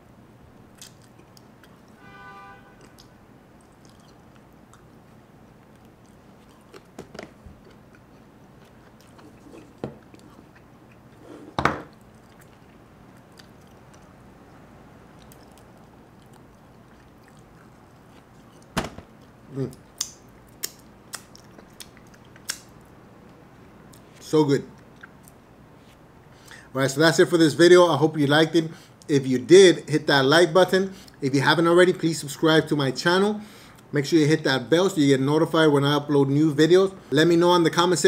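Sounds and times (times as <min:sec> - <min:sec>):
person chewing: 0:00.7 - 0:02.0, 0:02.8 - 0:11.2, 0:11.9 - 0:14.6, 0:15.2 - 0:22.7
sharp clicks and smacks: 0:20.0 - 0:22.7.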